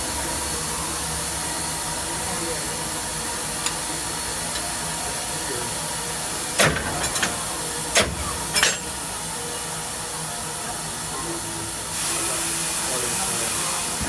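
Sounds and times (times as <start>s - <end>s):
steam hissing: 0.0s - 14.0s
sharp metallic clanks: 8.0s - 9.0s.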